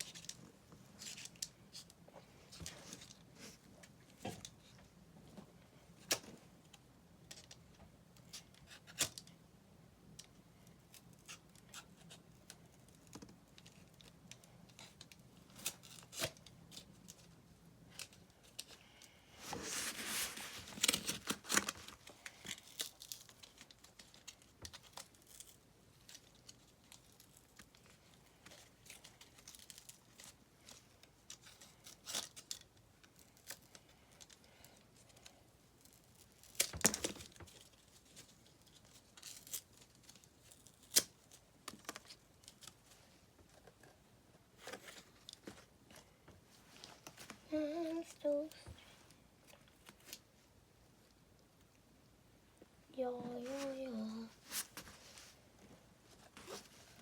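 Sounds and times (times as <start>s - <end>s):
tape tearing: 19.5s - 27.3s.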